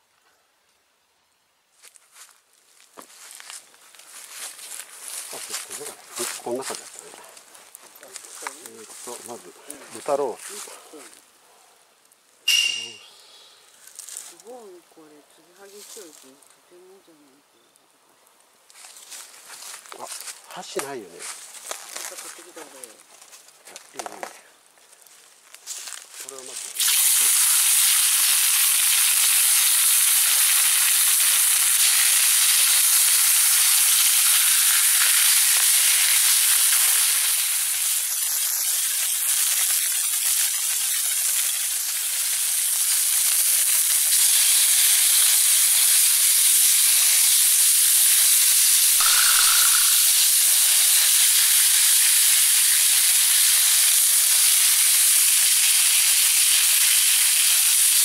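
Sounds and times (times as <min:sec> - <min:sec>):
meat sizzling on a grill: 0:25.8 - 0:58.0.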